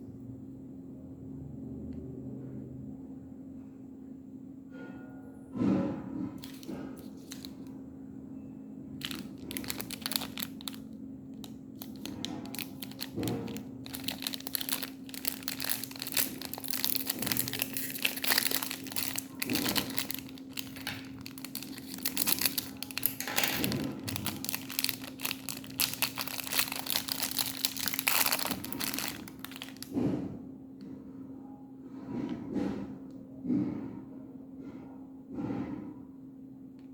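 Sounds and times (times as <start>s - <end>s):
wrappers crinkling and tearing: 6.4s - 7.7s, 9.0s - 30.0s.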